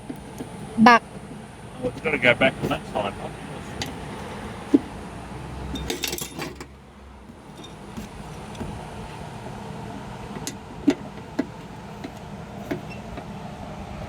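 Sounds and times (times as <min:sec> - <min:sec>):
metal parts clinking and rattling: 0:05.6 - 0:08.8.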